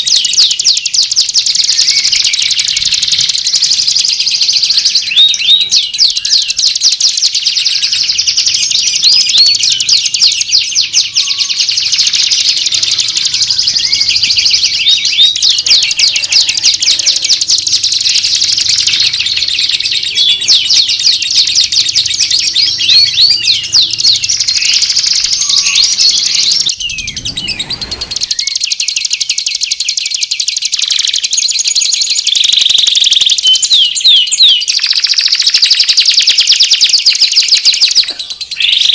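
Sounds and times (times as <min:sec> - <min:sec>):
songbirds singing: 0:00.0 - 0:38.9
low falling whoosh: 0:23.2 - 0:28.9.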